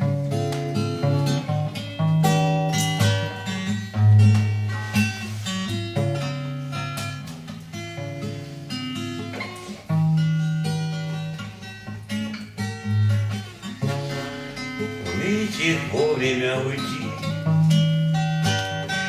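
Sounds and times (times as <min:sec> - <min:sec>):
acoustic guitar playing: 0:00.0 - 0:19.0
person singing: 0:15.0 - 0:17.5.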